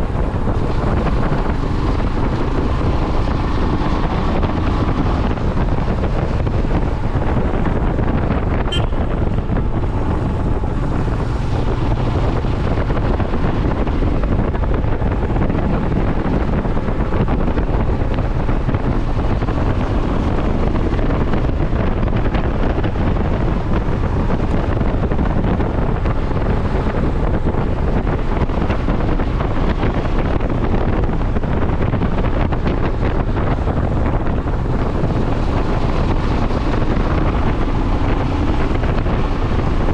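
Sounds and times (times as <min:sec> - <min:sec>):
motorcycle road and engine noise: 0:00.0 - 0:39.9
wind buffeting microphone: 0:00.0 - 0:39.9.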